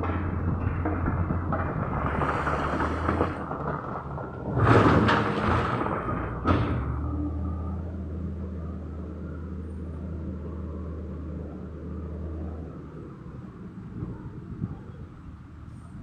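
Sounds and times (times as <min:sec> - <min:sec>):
digging clatter: 0:00.0 - 0:07.0
loud rumbling crash: 0:00.0 - 0:07.2
diesel engine running: 0:00.0 - 0:16.0.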